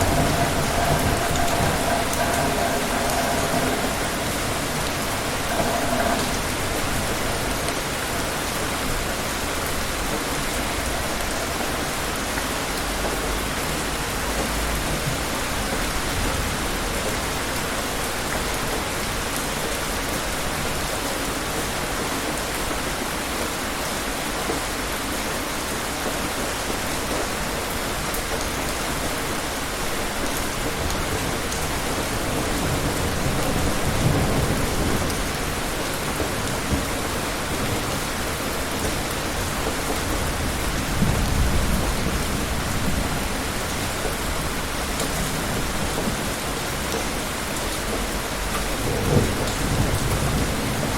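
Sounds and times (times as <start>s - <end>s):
distant thunder rumble: 0.0s - 17.4s, 30.6s - 50.9s
heavy rain on hard surfaces: 0.0s - 50.9s.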